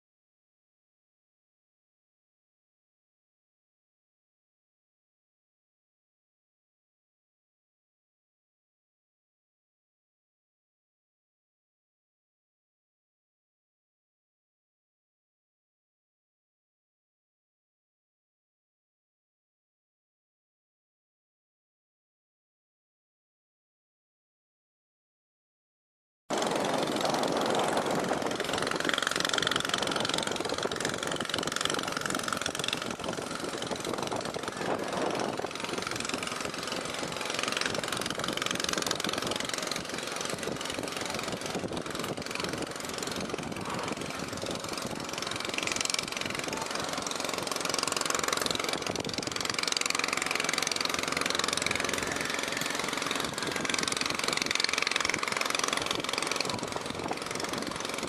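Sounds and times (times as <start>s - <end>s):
building site noise: 26.3s - 58.0s
machinery engine knocking: 26.3s - 58.0s.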